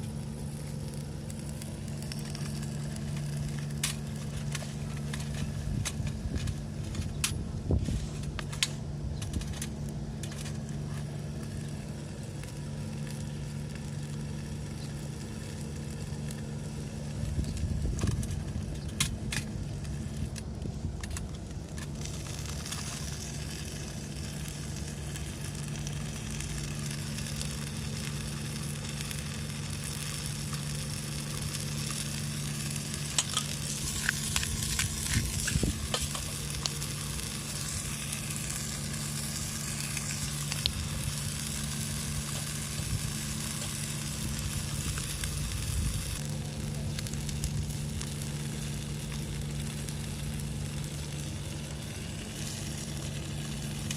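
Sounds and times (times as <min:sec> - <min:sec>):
sharp crackles and taps: 0:00.0 - 0:53.9
steady low hum: 0:00.0 - 0:53.9
food sizzling in a frying pan: 0:21.9 - 0:53.9.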